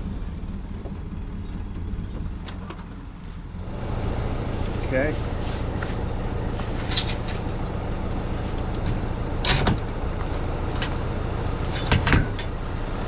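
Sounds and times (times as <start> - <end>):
vehicle engine idling: 0.0 - 13.0
knocks and clunks: 5.7 - 12.6.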